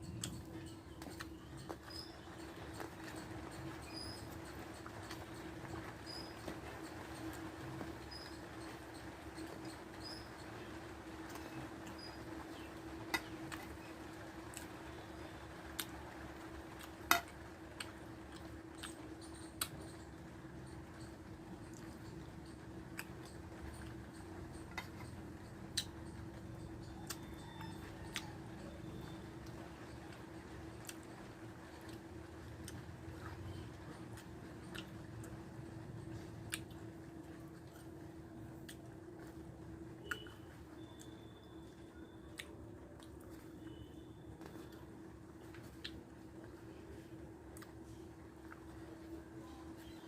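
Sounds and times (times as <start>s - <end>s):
person chewing food: 0.0s - 7.9s, 11.3s - 14.8s, 15.7s - 16.0s, 16.6s - 19.9s, 21.6s - 30.2s, 30.8s - 31.2s, 31.8s - 35.4s, 36.0s - 38.0s
steady low hum: 0.0s - 50.0s
eating clicks and taps on plate: 16.8s - 20.0s.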